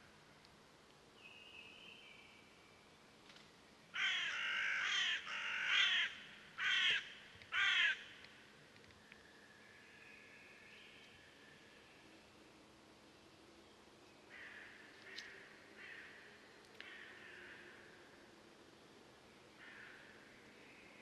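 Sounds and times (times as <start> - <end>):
bird harsh rasping calls: 4.0 - 8.0.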